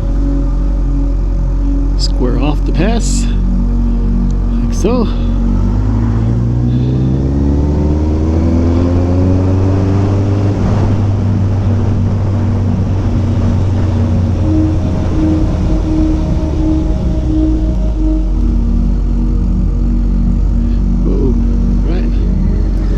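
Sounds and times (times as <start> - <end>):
rushing noise: 9.3 - 21.7.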